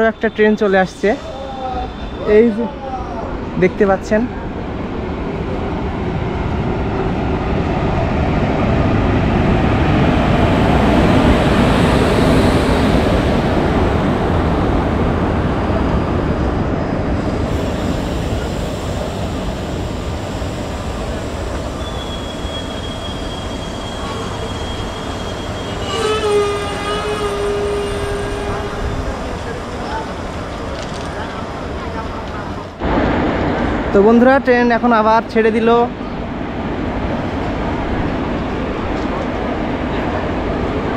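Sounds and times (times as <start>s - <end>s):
train cars rumbling past: 0.0s - 40.9s
high squeal of wheels: 0.1s - 2.7s, 21.6s - 28.7s.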